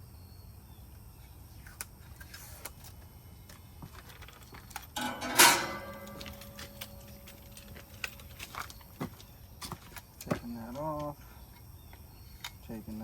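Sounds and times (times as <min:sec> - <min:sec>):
plastic film clicks and rustles: 0:01.6 - 0:11.2
sheet metal ringing: 0:05.0 - 0:08.6.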